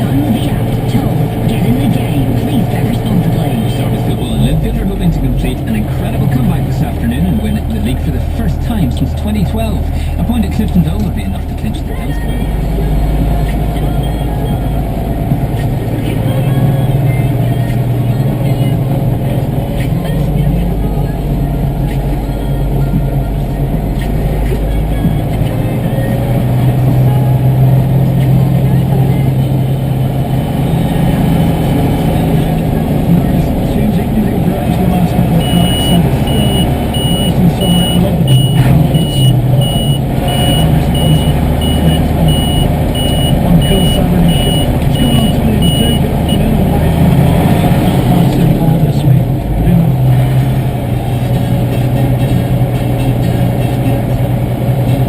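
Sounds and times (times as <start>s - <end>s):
diesel tractor engine running: 0.0s - 55.0s
high-pitched electronic beep: 35.3s - 46.5s.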